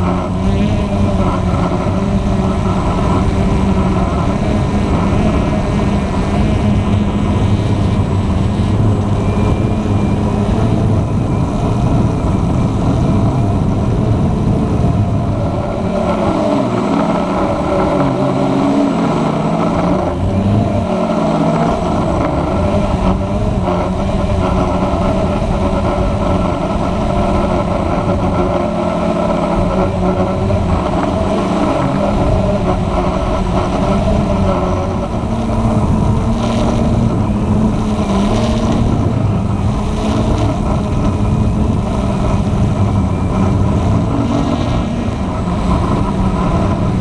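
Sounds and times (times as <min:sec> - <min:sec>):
quadcopter motors and propellers: 0:00.0 - 0:47.0.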